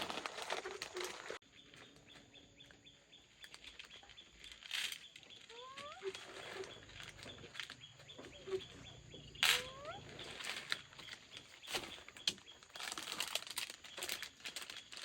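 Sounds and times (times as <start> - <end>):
rustling: 0.0 - 2.2, 3.3 - 15.0
small animal squeaking: 5.4 - 10.4.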